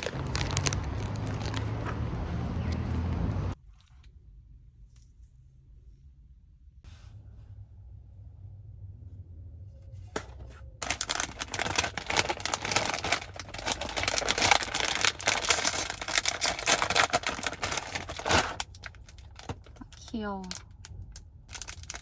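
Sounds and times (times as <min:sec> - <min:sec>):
rapid dense clicking and crackling: 0:10.8 - 0:22.0.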